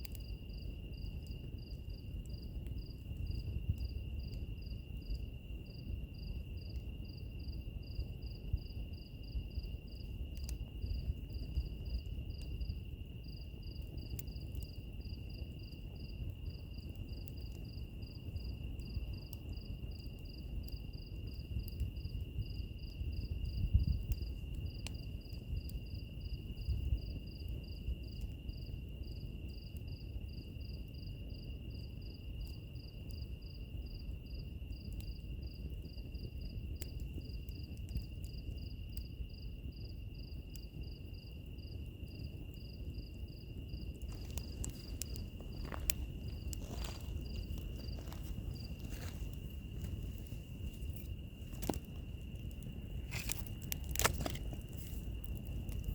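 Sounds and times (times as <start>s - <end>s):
wood fire crackling and popping: 0.0s - 29.9s, 34.4s - 55.9s
cricket chirping: 0.0s - 55.9s
high insect trill: 38.3s - 55.9s.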